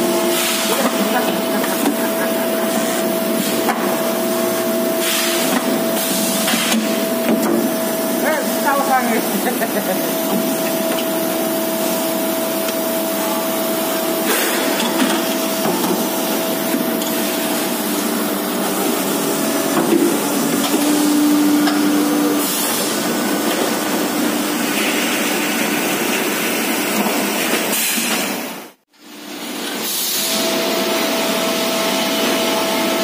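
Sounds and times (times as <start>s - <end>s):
factory machinery hiss: 0.0s - 21.2s, 29.7s - 33.0s.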